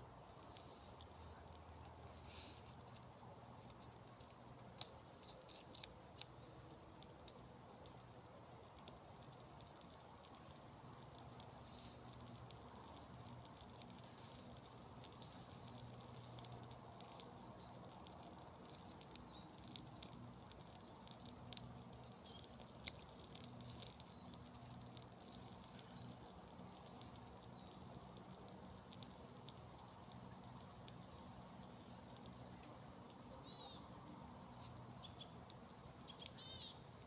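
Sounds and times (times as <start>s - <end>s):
campfire crackling: 0.0s - 37.0s.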